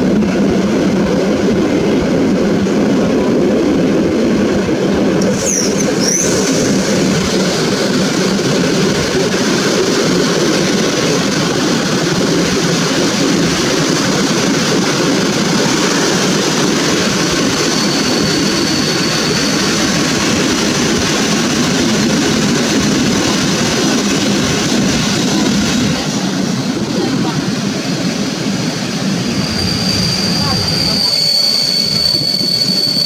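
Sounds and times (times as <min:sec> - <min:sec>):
train wheels rumbling on rails: 0:00.0 - 0:33.0
hiss: 0:05.2 - 0:08.0.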